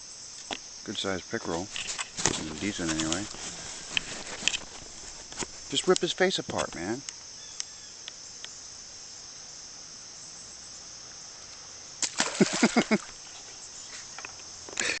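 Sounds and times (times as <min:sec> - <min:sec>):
crickets chirring: 0:00.0 - 0:15.0
light clicks: 0:05.9 - 0:08.6.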